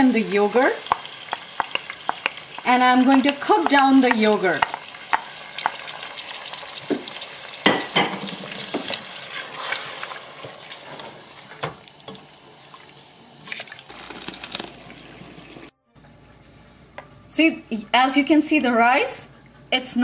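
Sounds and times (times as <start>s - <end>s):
food sizzling in a pot: 0.0s - 15.7s
spoon scraping a pot: 7.8s - 11.2s.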